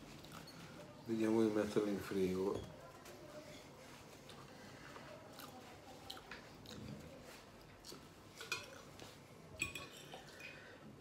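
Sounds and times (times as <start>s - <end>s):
man chewing spaghetti: 0.0s - 0.7s, 4.2s - 9.4s.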